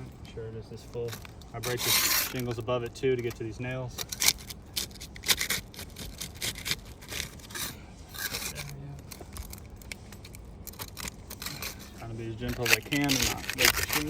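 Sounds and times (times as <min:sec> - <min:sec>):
tool scraping under shingles: 0:01.0 - 0:14.0
sealant strip crackling: 0:04.0 - 0:14.0.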